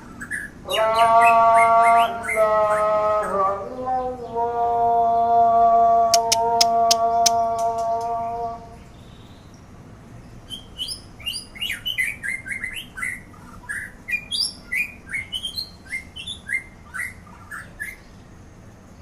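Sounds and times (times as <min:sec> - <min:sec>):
bird singing whistled notes: 0:06.2 - 0:08.2, 0:10.4 - 0:18.0.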